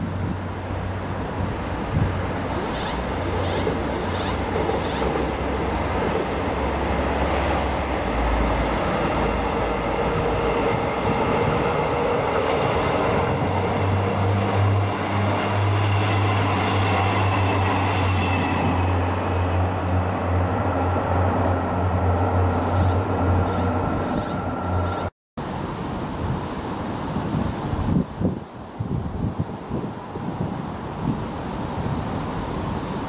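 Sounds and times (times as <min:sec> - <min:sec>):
wind rumble on microphone: 0:00.0 - 0:20.5, 0:21.8 - 0:33.0
train low hum: 0:00.0 - 0:25.8.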